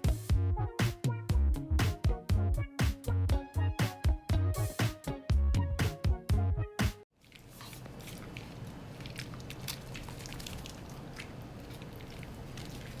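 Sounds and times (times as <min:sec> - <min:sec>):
upbeat background music: 0:00.0 - 0:07.0.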